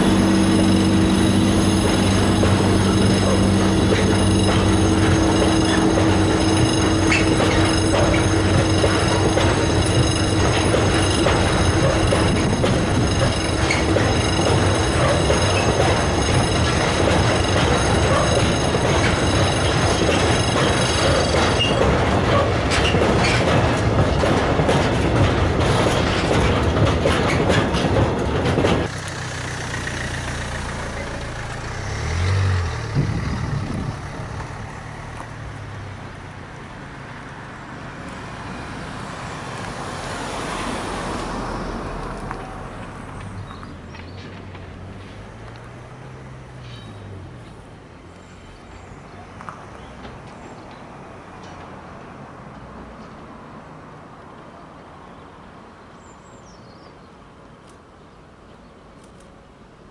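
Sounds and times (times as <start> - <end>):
high-pitched wheel squeal: 0.0 - 23.4
rapid wagon clatter: 0.0 - 32.3
freight wagons rolling on rails: 0.0 - 53.4.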